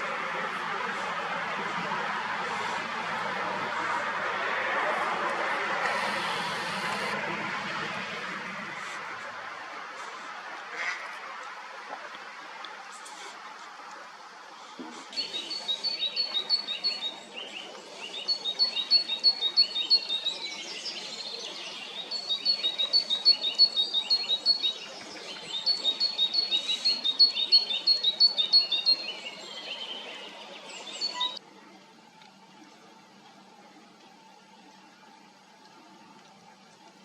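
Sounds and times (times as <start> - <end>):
songbird singing: 15.1 - 31.4.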